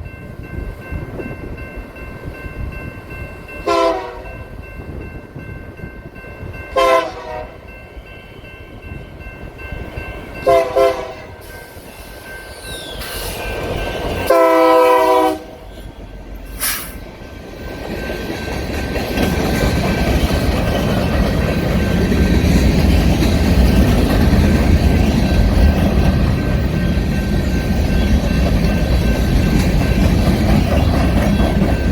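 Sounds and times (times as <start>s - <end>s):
train rolling on rails: 0.0s - 31.9s
locomotive air horn blasts: 3.6s - 4.3s, 6.8s - 7.6s, 10.4s - 11.5s, 14.3s - 15.7s.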